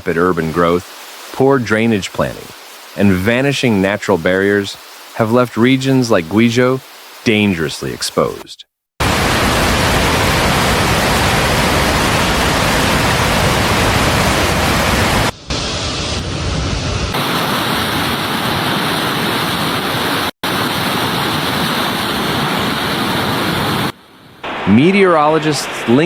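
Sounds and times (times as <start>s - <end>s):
floodwater rushing: 0.0s - 8.4s, 9.0s - 15.3s.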